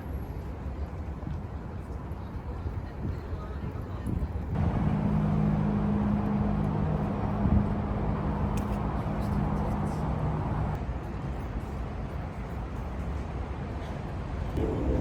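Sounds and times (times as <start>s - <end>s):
outdoor traffic noise: 4.5s - 15.0s
low two-note mechanical hum: 14.6s - 15.0s.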